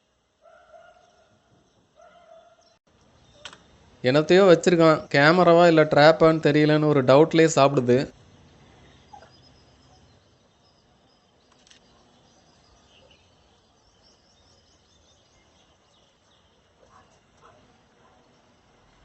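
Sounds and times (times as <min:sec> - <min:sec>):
faint bird chirps: 0:00.4 - 0:03.9, 0:08.2 - 0:19.0.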